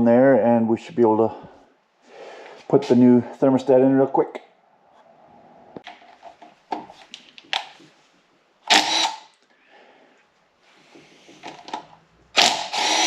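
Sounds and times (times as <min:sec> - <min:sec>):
cordless drill whirring: 0:08.7 - 0:09.3, 0:12.4 - 0:13.0.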